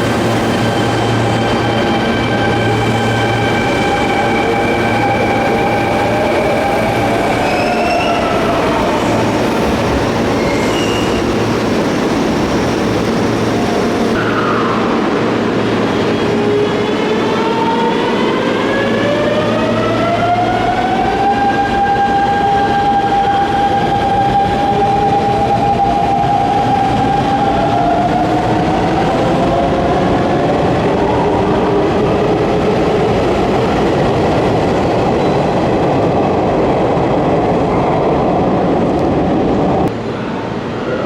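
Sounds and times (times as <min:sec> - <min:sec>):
train wheels rumbling: 0:00.0 - 0:41.0.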